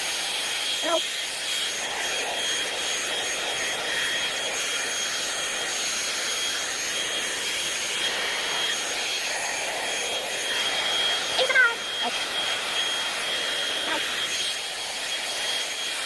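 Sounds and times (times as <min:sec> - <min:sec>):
high motor whine: 0:00.0 - 0:16.0
hot-air brush blowing air: 0:00.0 - 0:16.0.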